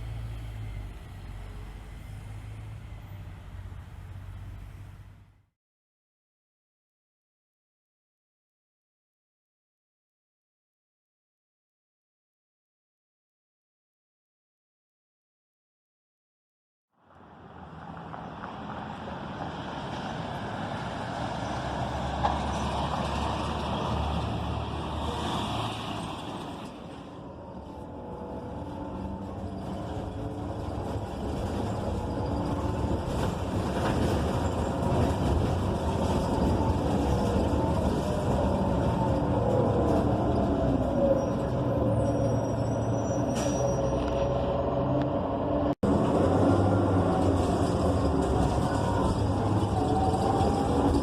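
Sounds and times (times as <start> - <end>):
bus engine running: 0.0 - 5.5, 17.2 - 51.0.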